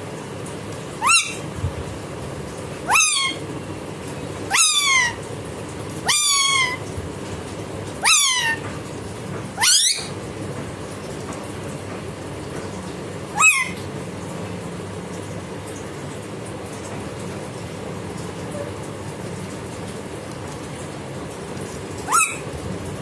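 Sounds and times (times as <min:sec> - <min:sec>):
parrot mimicking cat meow: 0:01.0 - 0:01.4, 0:02.9 - 0:03.4, 0:04.5 - 0:05.2, 0:06.0 - 0:06.8, 0:08.0 - 0:08.6, 0:09.6 - 0:10.1, 0:13.4 - 0:13.8, 0:22.1 - 0:22.5.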